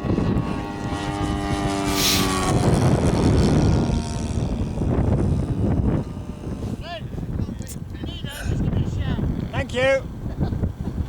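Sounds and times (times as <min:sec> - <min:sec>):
model plane motor whining: 0:00.0 - 0:06.9
wind buffeting microphone: 0:00.0 - 0:11.0
short hiss: 0:02.0 - 0:02.3.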